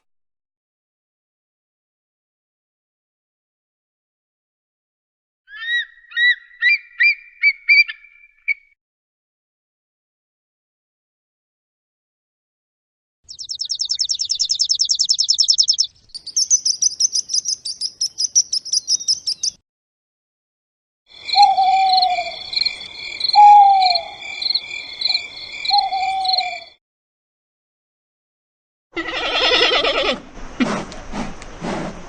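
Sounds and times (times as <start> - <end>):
falling bird calls: 13.3 - 19.6, 21.1 - 26.8
rapid high-pitched bird trills: 13.3 - 19.6, 21.2 - 26.8.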